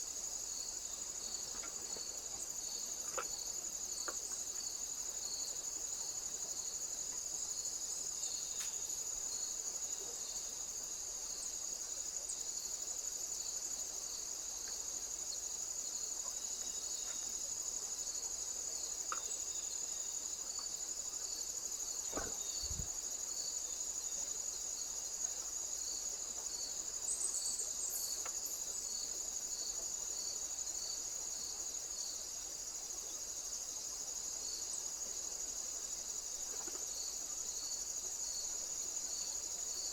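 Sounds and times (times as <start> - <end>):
insect chirping: 0.0 - 39.9
insects trilling high-pitched: 12.1 - 32.2.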